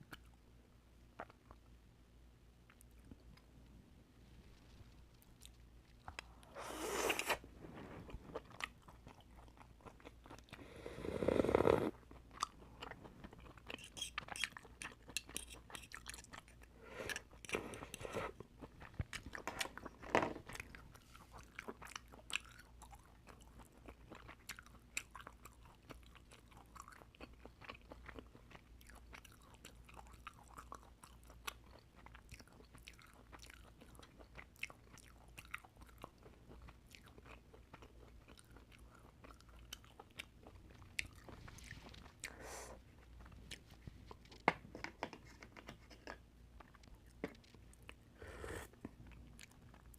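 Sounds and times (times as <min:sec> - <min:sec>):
chewing oysters with wet smacks: 0:08.3 - 0:10.6, 0:12.0 - 0:17.6, 0:18.3 - 0:44.3.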